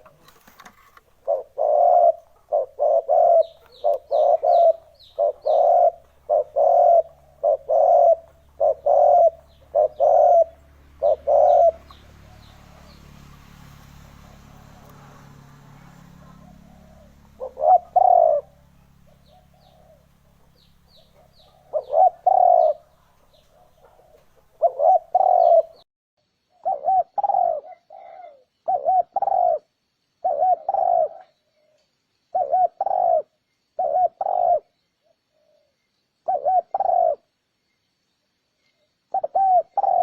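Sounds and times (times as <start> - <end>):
dove cooing: 0.0 - 13.4, 14.0 - 25.8, 26.5 - 37.3, 39.1 - 40.0.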